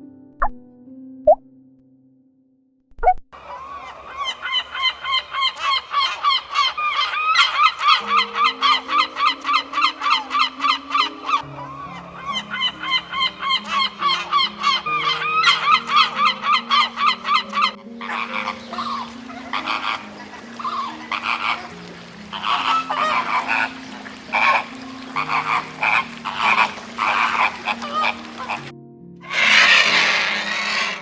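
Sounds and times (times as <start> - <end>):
geese honking: 3.4 - 31.0
animal making short calls: 18.0 - 31.0.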